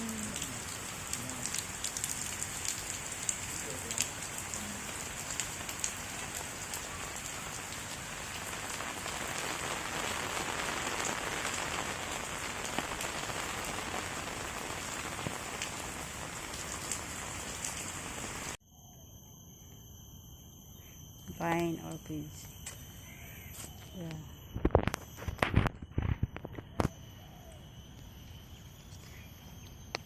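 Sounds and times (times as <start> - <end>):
steady rain falling: 0.0 - 18.6
steady high tones: 18.6 - 25.9.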